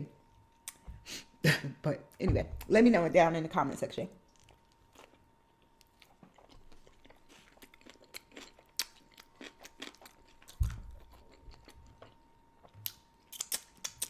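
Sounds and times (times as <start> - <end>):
low thump: 2.2 - 2.7
person chewing food: 4.3 - 14.0.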